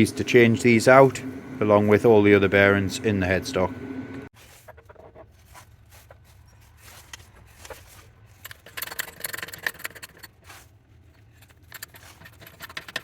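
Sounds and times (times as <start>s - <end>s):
metal parts scraping and clicking: 6.3s - 13.0s.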